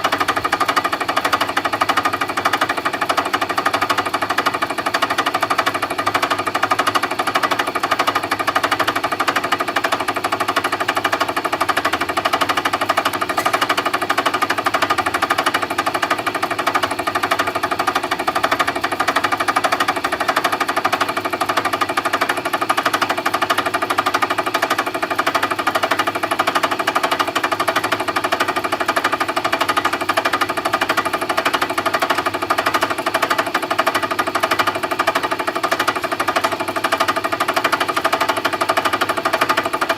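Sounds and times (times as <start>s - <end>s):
milling machine cutting: 8.5s - 16.6s.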